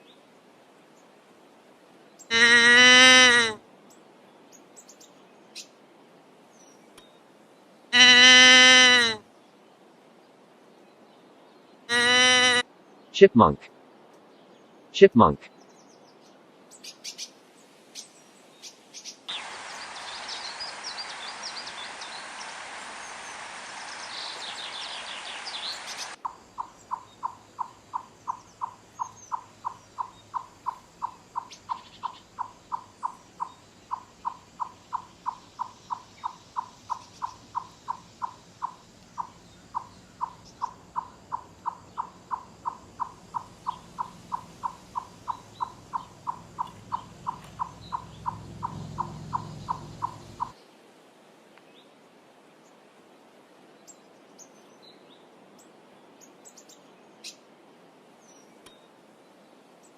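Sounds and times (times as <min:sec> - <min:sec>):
background hiss: 0:00.0 - 0:59.9
chipmunk chipping calls: 0:02.3 - 0:03.6, 0:11.9 - 0:12.6, 0:24.2 - 0:50.6
high chirping: 0:19.3 - 0:50.6.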